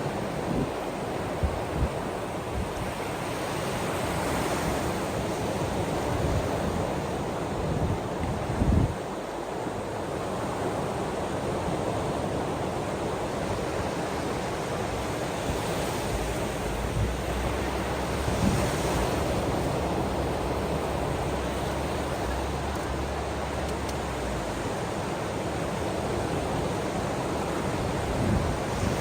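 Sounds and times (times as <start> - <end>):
ocean waves washing onto shore: 0.0 - 29.0
wind buffeting microphone: 4.7 - 9.1, 14.8 - 25.0, 25.6 - 29.0.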